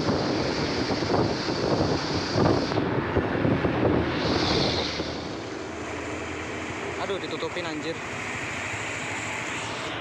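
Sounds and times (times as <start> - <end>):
wind buffeting microphone: 0.0 - 7.7
road traffic rumble: 0.0 - 10.0.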